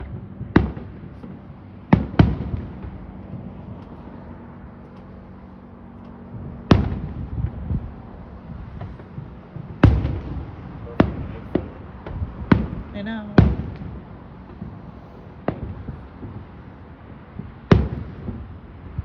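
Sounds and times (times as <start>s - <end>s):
distant firework booms: 0.0s - 5.3s, 6.3s - 19.0s
faint firework pops: 8.7s - 16.6s.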